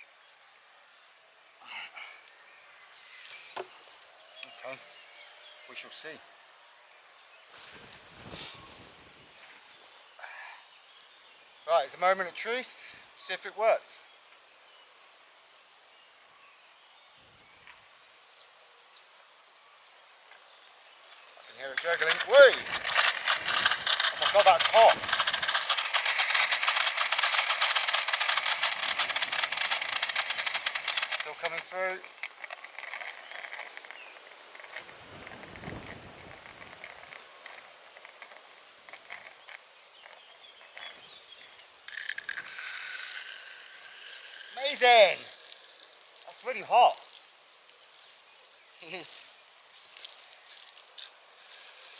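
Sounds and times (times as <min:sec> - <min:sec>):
hiss of spraying water: 0:21.0 - 0:38.3, 0:42.4 - 0:51.9
faint low rustle: 0:21.0 - 0:40.2
water dripping from shower head: 0:43.0 - 0:51.9.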